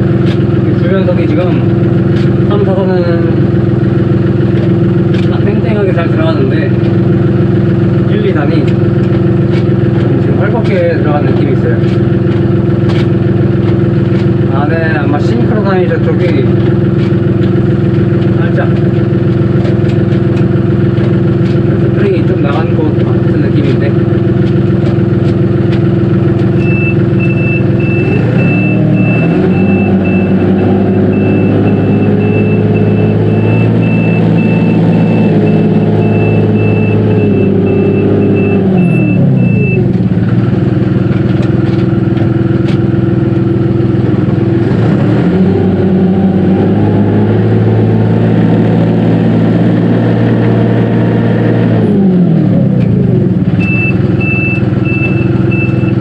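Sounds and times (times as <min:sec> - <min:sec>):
tractor diesel engine revving: 0:00.0 - 0:56.0
reverse warning beeper: 0:26.6 - 0:39.9, 0:53.6 - 0:56.0.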